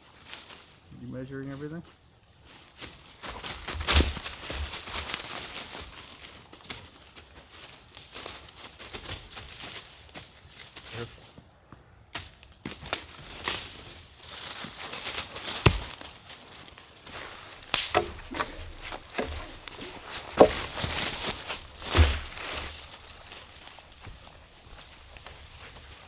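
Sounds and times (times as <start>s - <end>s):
hand tools knocking on wood: 17.1s - 25.3s.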